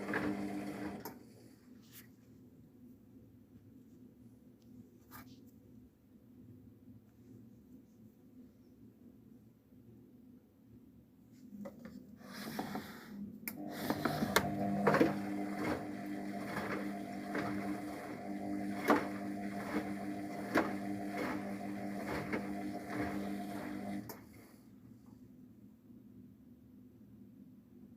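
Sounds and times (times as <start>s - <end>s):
washing machine motor hum: 0.0s - 1.2s, 13.5s - 24.4s.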